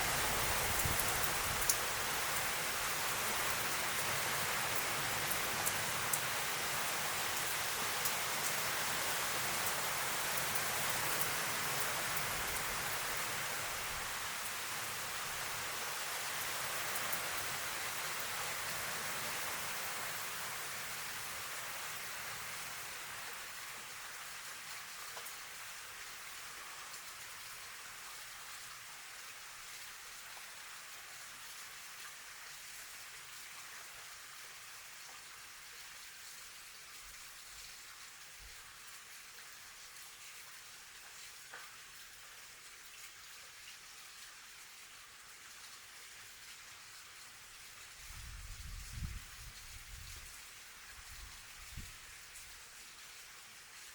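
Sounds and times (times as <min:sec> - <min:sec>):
heavy rain falling: 0:00.0 - 0:25.8.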